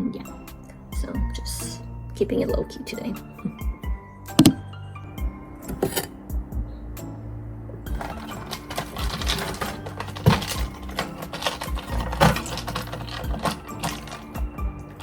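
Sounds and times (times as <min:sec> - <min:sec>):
background music with low notes: 0:00.0 - 0:15.0
rapid clattering clicks and knocks: 0:07.9 - 0:15.0.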